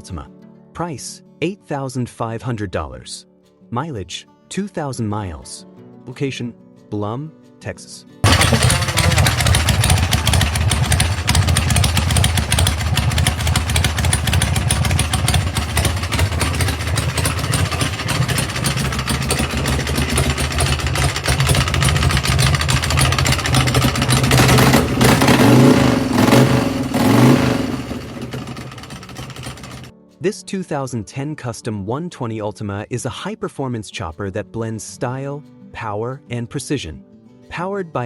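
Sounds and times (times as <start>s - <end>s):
motorcycle engine idling: 8.2s - 29.9s
motorcycle engine revving: 8.2s - 29.9s.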